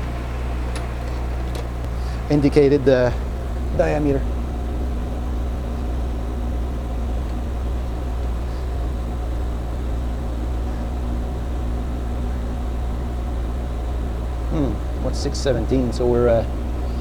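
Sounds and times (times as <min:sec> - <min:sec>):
faint steady tones: 0:00.0 - 0:17.0
low machine hum: 0:00.0 - 0:17.0.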